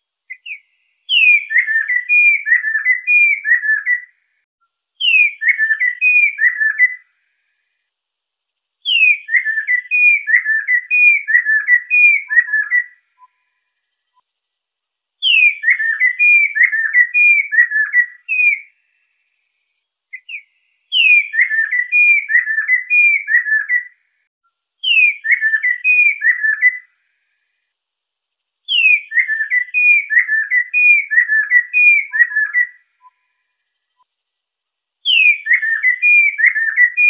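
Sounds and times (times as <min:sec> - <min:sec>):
bird singing whistled phrases: 0:00.3 - 0:04.2, 0:05.0 - 0:07.1, 0:08.8 - 0:13.6, 0:15.2 - 0:18.8, 0:20.1 - 0:24.0, 0:24.8 - 0:26.9, 0:28.7 - 0:33.4, 0:35.0 - 0:37.0.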